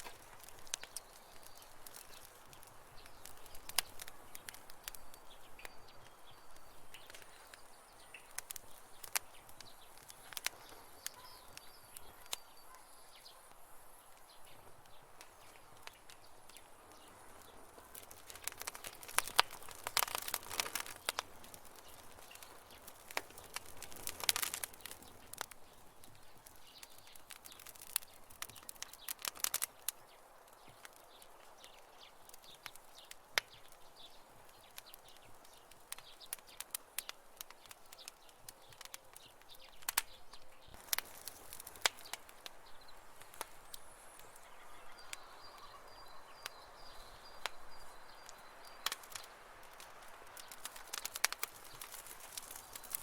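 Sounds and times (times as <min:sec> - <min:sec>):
campfire crackling and popping: 0:00.0 - 0:53.0
faint bird chirps: 0:02.9 - 0:21.2, 0:24.0 - 0:49.4.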